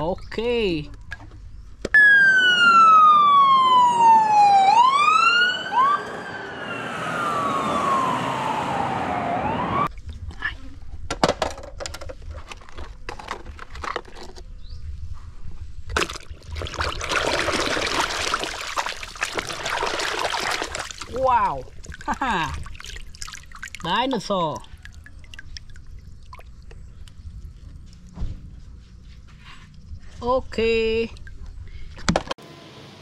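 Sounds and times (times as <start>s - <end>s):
toy electronic siren wailing: 2.0s - 9.9s.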